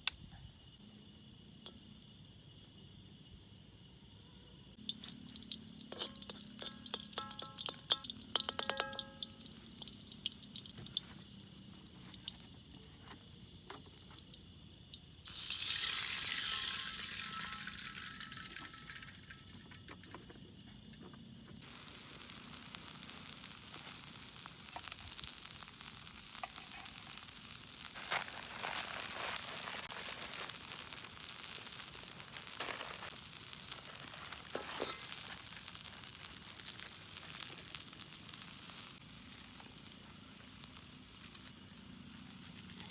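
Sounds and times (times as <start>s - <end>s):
food sizzling in a pan: 4.7s - 20.1s, 21.6s - 42.9s
light clinks: 4.8s - 11.4s.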